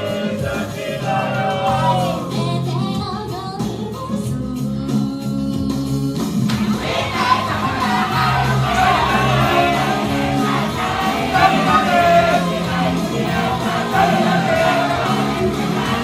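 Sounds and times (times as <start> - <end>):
loud pop backing track: 0.0 - 16.0
woman singing: 2.2 - 8.0.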